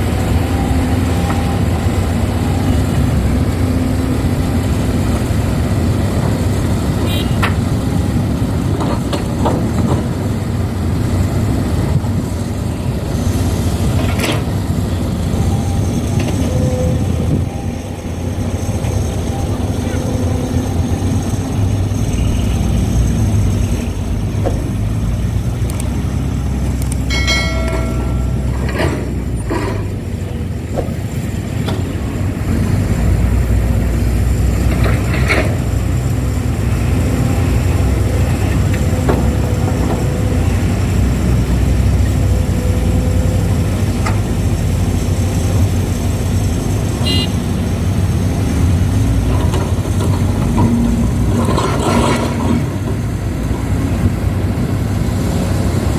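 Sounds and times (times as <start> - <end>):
diesel machinery rumbling: 0.0 - 55.9.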